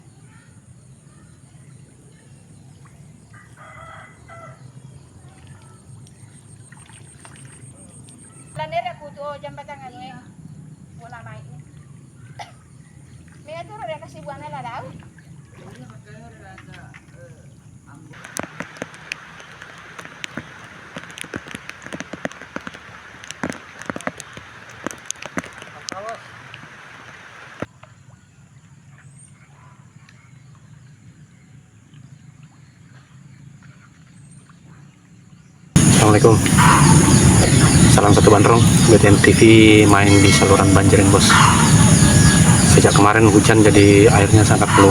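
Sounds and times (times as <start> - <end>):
rooster crowing: 3.4 - 4.6, 35.8 - 44.9
rain hissing: 18.2 - 27.7, 35.8 - 44.9
raindrops tapping a surface: 18.2 - 27.7
high-pitched pulsing buzz: 35.8 - 44.9
low rumble: 35.8 - 44.9.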